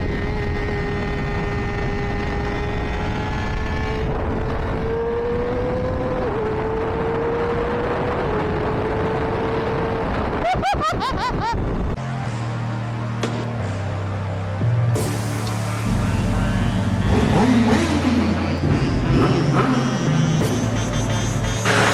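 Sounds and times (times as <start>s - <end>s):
motorcycle engine revving: 0.0s - 10.4s, 15.0s - 21.9s.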